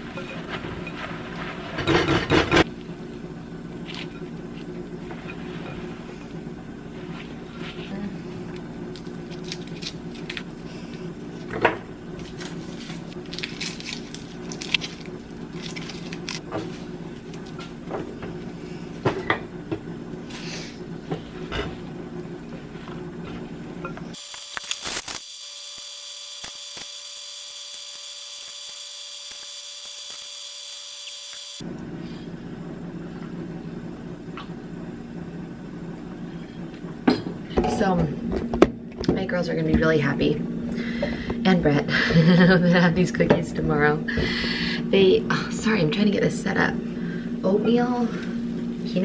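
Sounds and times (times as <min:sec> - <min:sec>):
steady low hum: 0:02.6 - 0:39.0
high-pitched whine: 0:24.2 - 0:31.6.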